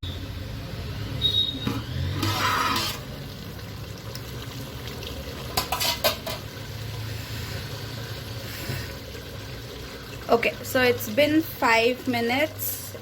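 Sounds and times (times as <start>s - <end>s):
pot lid scraping: 1.6s - 3.1s, 5.5s - 6.4s.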